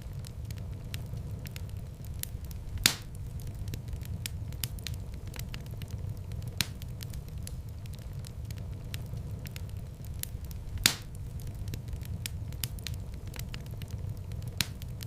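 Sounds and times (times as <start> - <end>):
fire crackling: 0.0 - 15.0
loud pop of fire: 2.2 - 7.6, 10.2 - 15.0.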